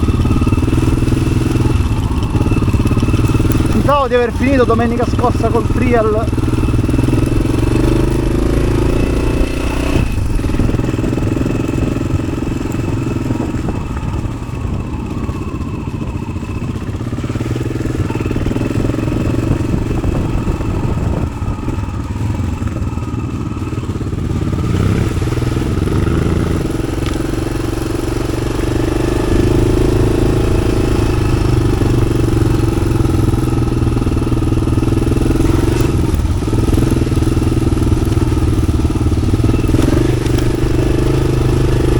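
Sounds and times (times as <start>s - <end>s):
motorcycle engine running off-road: 0.0s - 41.9s.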